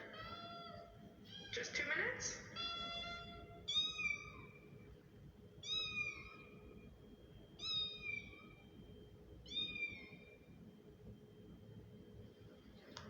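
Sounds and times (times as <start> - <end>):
kitten meowing: 2.6 - 4.5, 5.6 - 6.5, 9.5 - 10.2.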